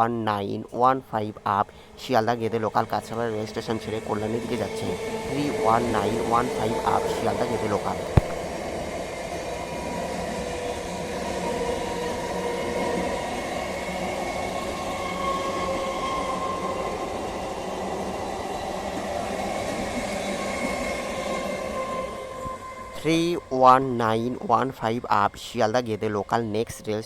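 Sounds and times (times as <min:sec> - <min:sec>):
faint steady whine: 0:00.0 - 0:14.3
train wheels rumbling: 0:00.5 - 0:26.2.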